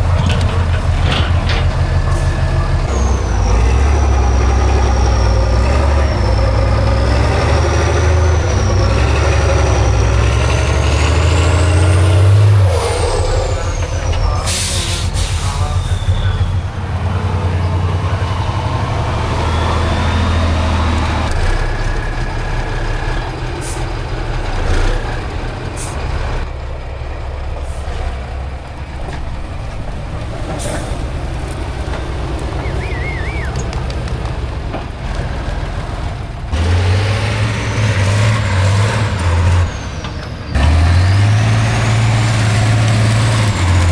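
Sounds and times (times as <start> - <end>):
diesel truck engine under load: 0.0 - 43.9
high whistle: 32.6 - 33.6.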